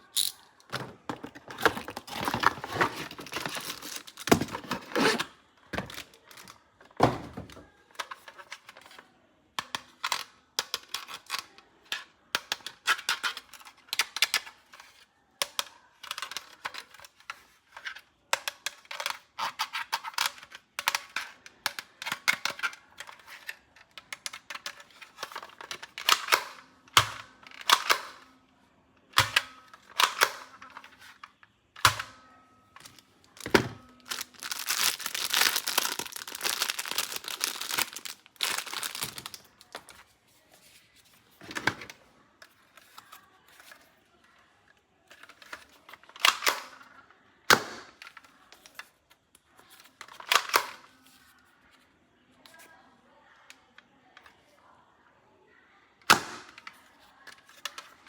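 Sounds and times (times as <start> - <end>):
plastic toys clicking and tapping: 0.0 - 28.4, 29.1 - 32.2, 32.8 - 40.0.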